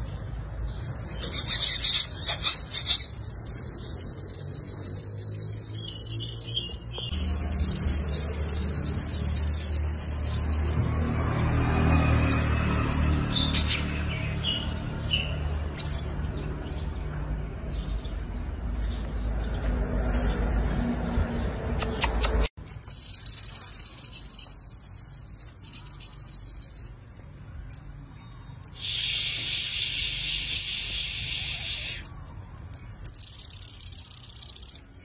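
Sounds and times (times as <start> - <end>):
bird singing high fast trills: 0.7 - 11.1, 22.6 - 27.0, 28.5 - 35.0.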